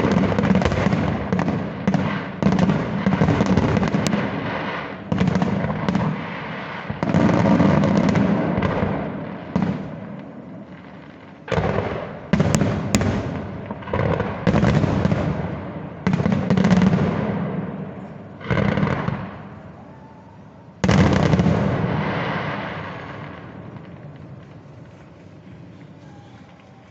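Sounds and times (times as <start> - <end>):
fireworks booming: 0.0 - 26.9.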